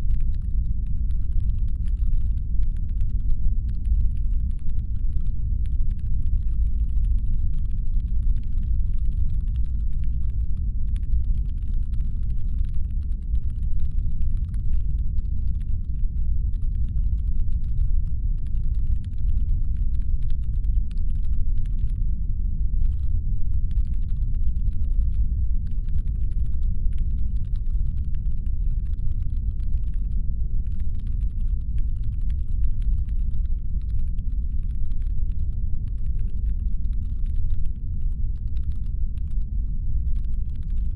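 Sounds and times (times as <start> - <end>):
faint rapid clicking: 0.0 - 22.1, 22.8 - 40.9
low rumble brown noise: 0.0 - 40.9.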